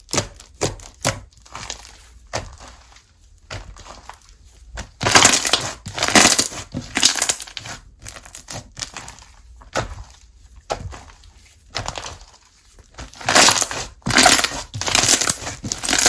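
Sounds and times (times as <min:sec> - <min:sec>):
slime crackling when squeezed: 0:13.1 - 0:16.0.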